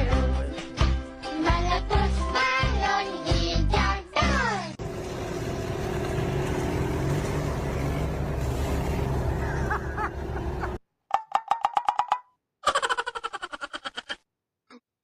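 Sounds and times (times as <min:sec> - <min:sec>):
motor vehicle running: 0:04.8 - 0:10.8.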